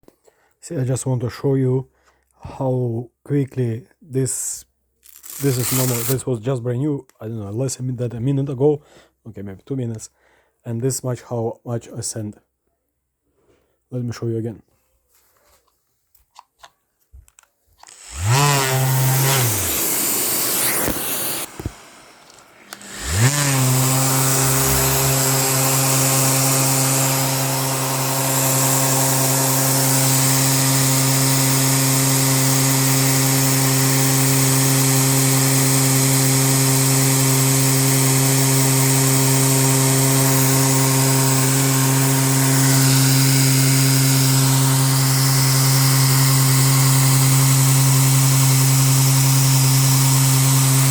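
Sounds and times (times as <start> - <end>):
electric sander sanding: 5.0 - 6.2, 17.8 - 50.9.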